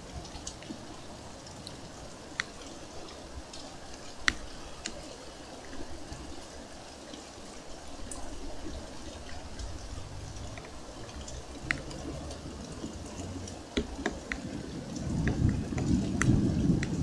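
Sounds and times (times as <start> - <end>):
rain falling: 0.0 - 17.0
water drops striking: 9.6 - 17.0.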